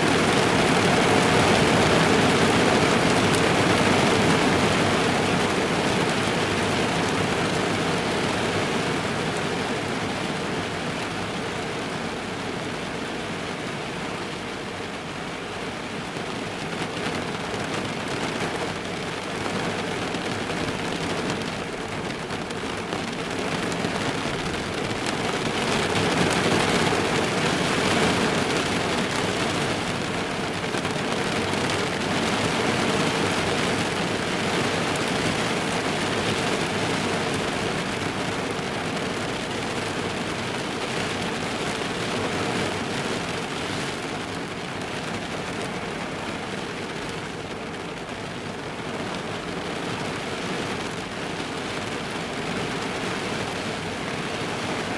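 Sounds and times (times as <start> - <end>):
heavy rain on a car roof: 0.0 - 54.9.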